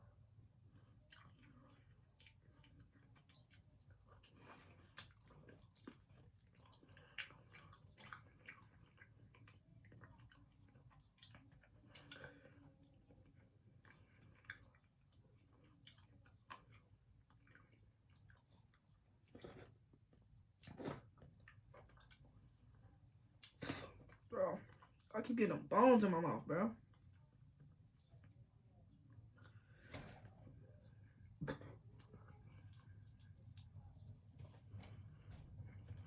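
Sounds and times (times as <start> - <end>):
chewing chicken wings: 0.6 - 25.2, 26.9 - 36.0.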